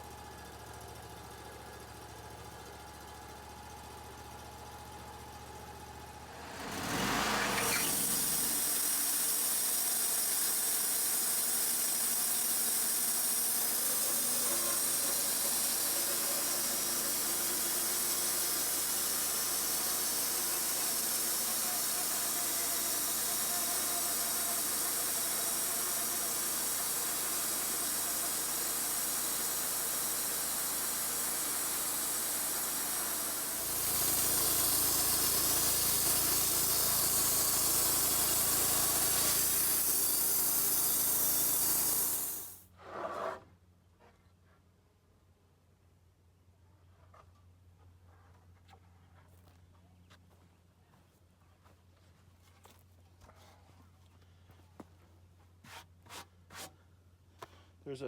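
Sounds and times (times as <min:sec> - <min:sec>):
engine running: 0:00.0 - 0:42.6
band saw blade hissing through wood: 0:06.3 - 0:42.6.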